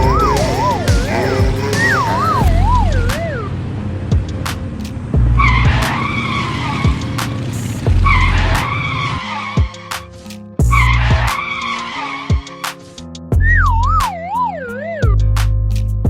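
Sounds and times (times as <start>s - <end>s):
cartoon tyres skidding and squealing: 0.0s - 3.8s, 5.4s - 10.0s, 10.7s - 12.6s
background music: 0.0s - 6.2s, 6.9s - 15.9s.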